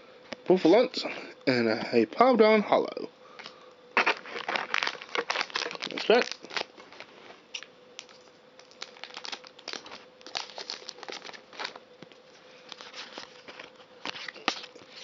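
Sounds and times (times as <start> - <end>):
faint steady hum: 0.0 - 15.0
foil wrapper crinkling: 4.0 - 15.0.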